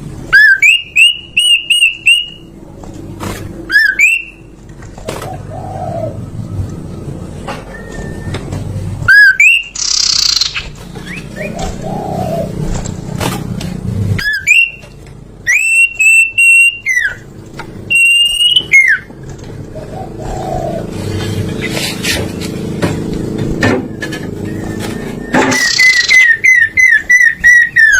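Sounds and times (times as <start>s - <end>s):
low background hum: 0.0s - 27.9s
songbird whistling: 0.3s - 2.5s, 3.7s - 4.5s, 7.6s - 12.5s, 14.2s - 19.1s, 23.8s - 27.9s.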